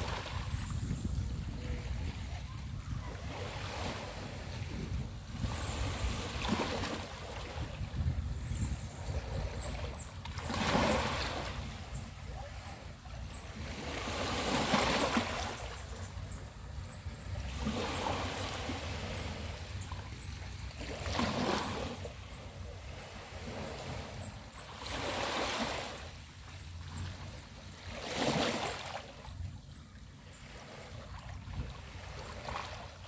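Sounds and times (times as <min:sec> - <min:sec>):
waves washing onto beach: 0:00.0 - 0:08.4
wind rumble on microphone: 0:00.0 - 0:24.4, 0:29.2 - 0:33.0.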